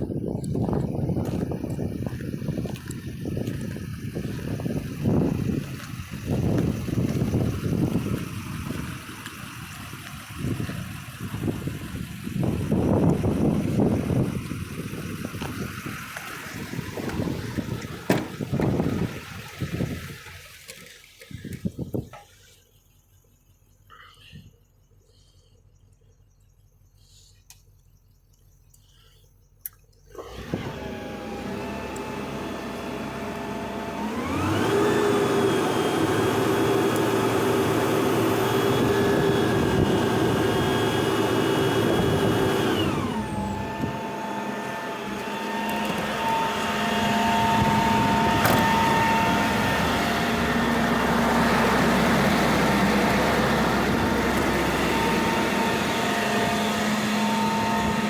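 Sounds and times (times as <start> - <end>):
truck engine whining and revving: 0.0 - 22.6, 29.7 - 58.0.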